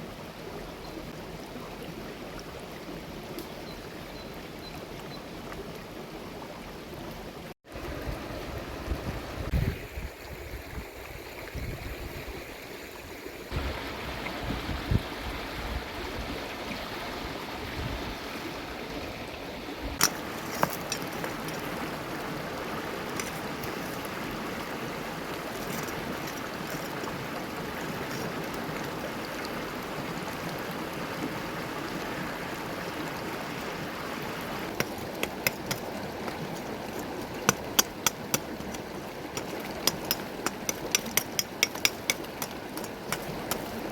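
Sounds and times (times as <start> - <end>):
river flowing: 12.5 - 43.9.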